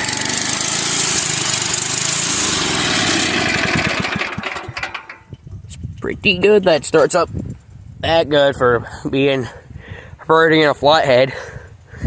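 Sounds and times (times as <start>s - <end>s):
small engine running and stopping: 0.0s - 5.8s.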